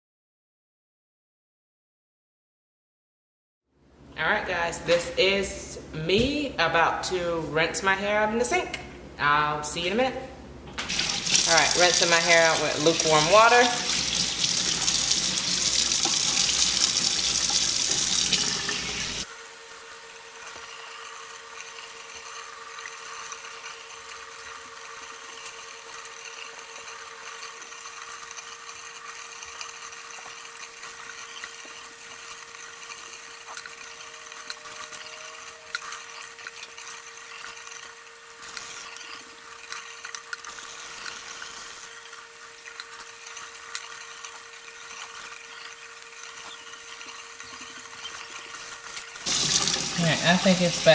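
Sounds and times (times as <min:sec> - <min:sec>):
tap water running into sink: 0:10.9 - 0:19.3, 0:46.2 - 0:50.9
steady hum with faint hiss: 0:49.2 - 0:50.9.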